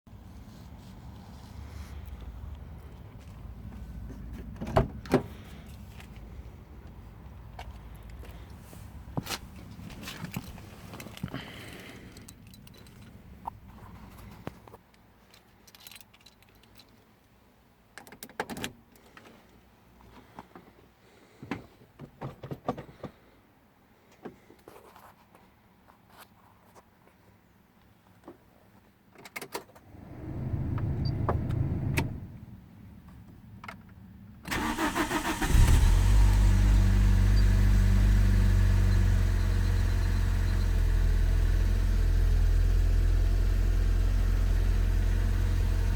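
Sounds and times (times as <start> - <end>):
keys jangling in ignition: 10.1 - 13.2, 15.3 - 17.0
car starter cranking: 34.5 - 40.0
car engine running: 35.5 - 45.9.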